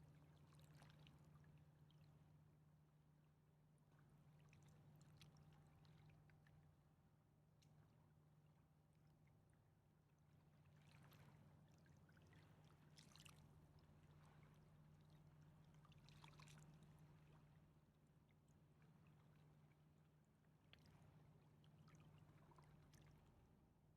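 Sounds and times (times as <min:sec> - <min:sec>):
river water lapping: 0:10.8 - 0:13.4.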